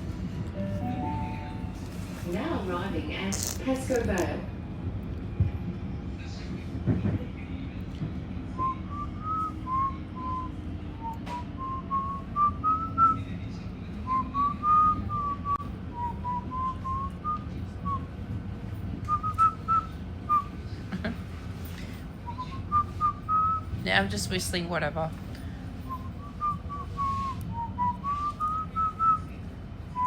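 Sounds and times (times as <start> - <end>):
low rumble of moving train: 0.0 - 30.0
woman whistling a tune: 8.6 - 13.2, 14.1 - 18.1, 19.0 - 20.6, 22.2 - 23.8, 25.8 - 29.3.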